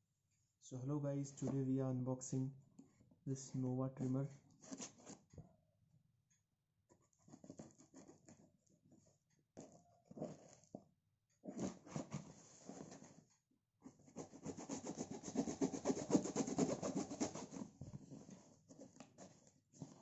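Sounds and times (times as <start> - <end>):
packaging being scraped and rubbed: 11.5 - 13.2, 13.9 - 20.0.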